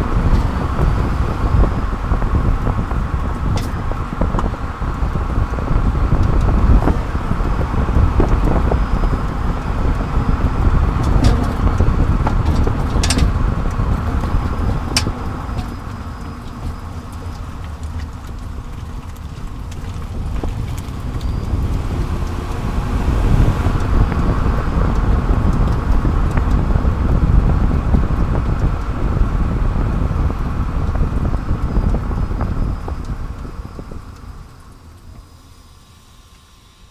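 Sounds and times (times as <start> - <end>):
wind rush: 0.0 - 34.8
tyre and road noise: 0.0 - 36.9.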